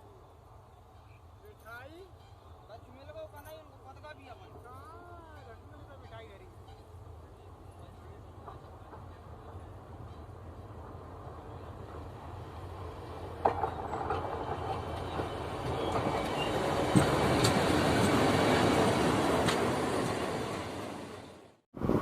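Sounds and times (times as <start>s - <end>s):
wheels clicking on rail joints: 3.0s - 20.9s
locomotive rumbling past: 6.4s - 21.6s.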